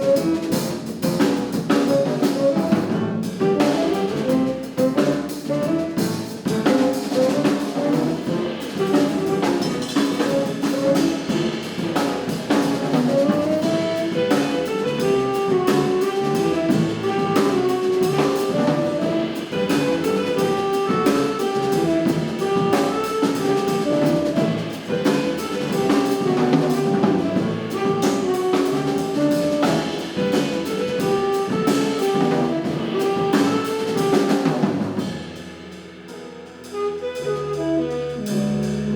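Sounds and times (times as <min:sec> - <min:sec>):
double bass: 0:00.0 - 0:38.9
drums and cymbals: 0:00.0 - 0:38.9
piano: 0:00.0 - 0:38.9
saxophone melody: 0:13.2 - 0:34.5, 0:36.6 - 0:38.9.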